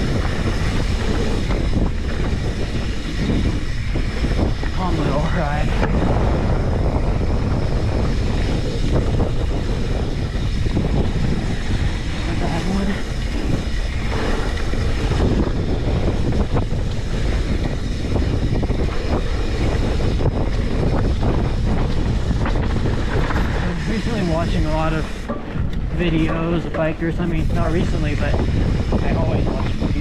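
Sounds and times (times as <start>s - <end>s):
bike knocks and rattles: 0.0s - 30.0s
bike tyres rumbling on trail: 0.0s - 30.0s
wind buffeting microphone: 0.0s - 30.0s.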